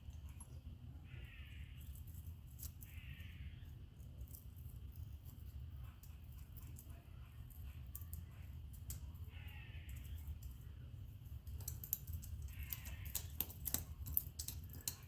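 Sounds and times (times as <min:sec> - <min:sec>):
metal parts clicking and tapping: 0:04.2 - 0:09.3, 0:09.9 - 0:15.0.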